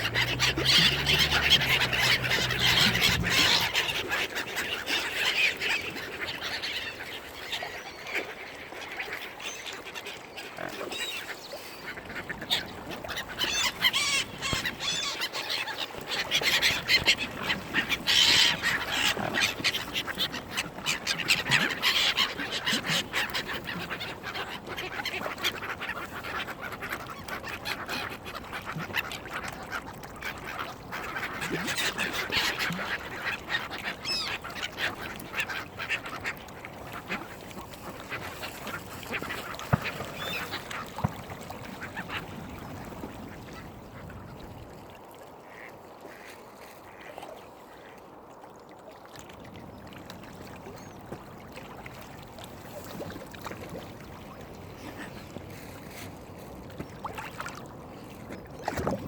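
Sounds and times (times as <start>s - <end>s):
ducks quacking and honking: 0.0s - 4.6s.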